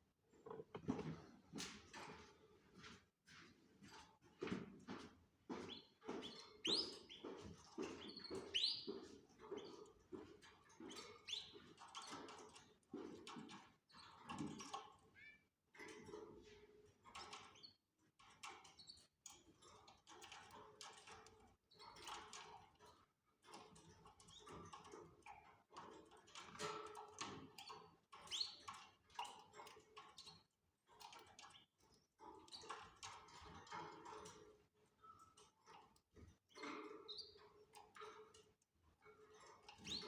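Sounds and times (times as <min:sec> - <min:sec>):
birds tapping and scratching: 0:03.5 - 0:15.2, 0:15.8 - 0:40.0.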